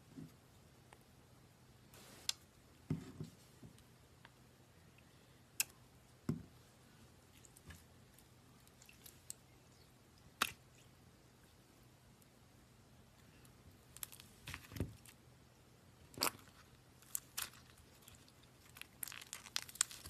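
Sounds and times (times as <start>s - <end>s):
slime squishing: 16.1s - 20.0s.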